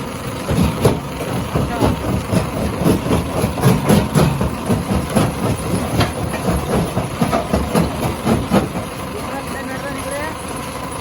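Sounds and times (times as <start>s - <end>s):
rock crusher rumbling: 0.0s - 11.0s.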